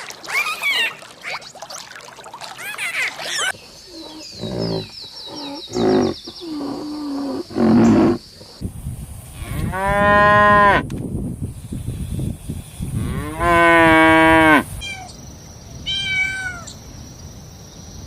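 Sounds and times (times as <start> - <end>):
cattle mooing: 4.0 - 8.2.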